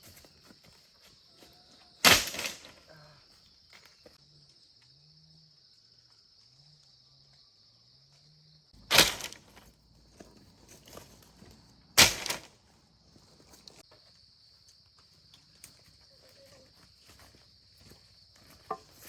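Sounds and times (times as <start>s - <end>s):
loud sharp bangs: 8.9s - 9.4s.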